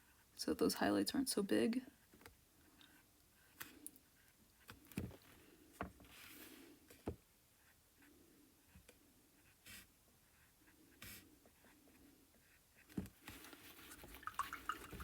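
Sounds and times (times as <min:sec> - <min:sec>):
paintbrush brushing paint: 0:13.2 - 0:15.0.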